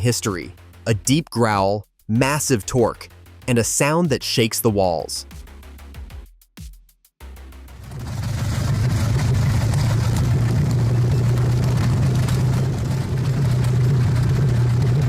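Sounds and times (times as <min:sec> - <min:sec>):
tank engine running: 0:07.7 - 0:15.0.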